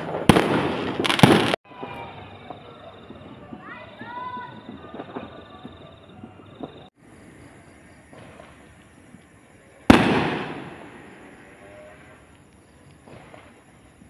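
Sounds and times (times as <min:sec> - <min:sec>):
loud firework burst: 0:00.0 - 0:02.5, 0:09.8 - 0:12.2.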